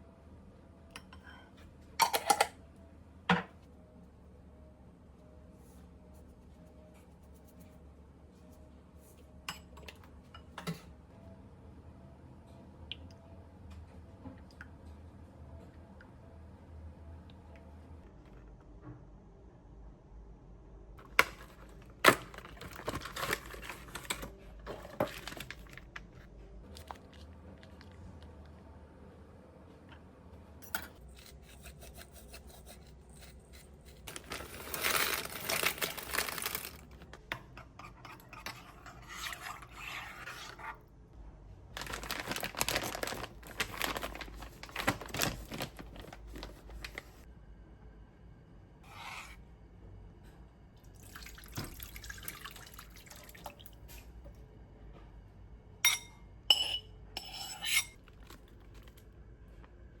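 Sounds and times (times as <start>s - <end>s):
dishes clinking: 1.0s - 2.6s, 55.8s - 58.0s.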